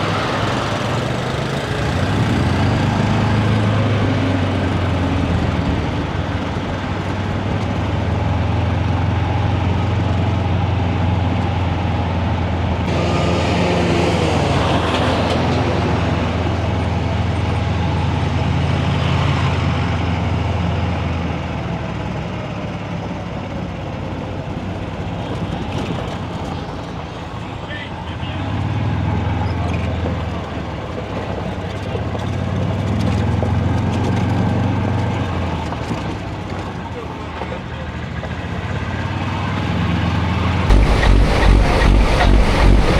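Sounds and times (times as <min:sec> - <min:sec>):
diesel truck engine humming: 0:40.7 - 0:42.9
rush of noise: 0:40.7 - 0:42.9.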